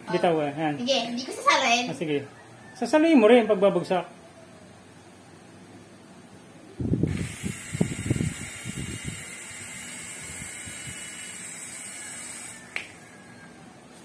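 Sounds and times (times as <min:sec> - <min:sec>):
toy helicopter motor whine: 0:07.1 - 0:13.6.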